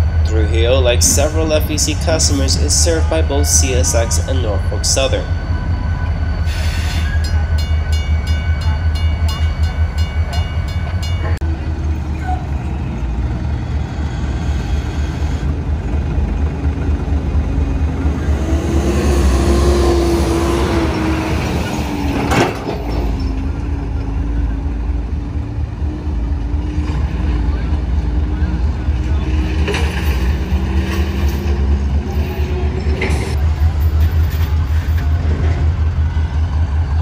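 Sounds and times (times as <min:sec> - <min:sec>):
crossing bell ringing: 0:00.0 - 0:13.0
diesel locomotives rumbling: 0:00.0 - 0:37.0.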